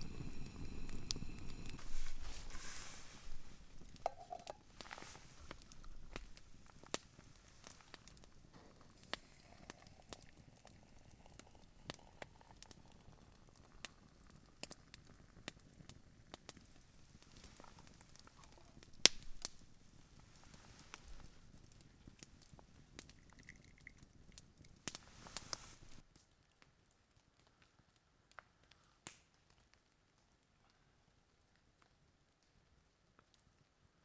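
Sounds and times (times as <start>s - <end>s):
campfire crackling: 0.0s - 26.0s
sharp pops of burning wood: 13.8s - 26.0s.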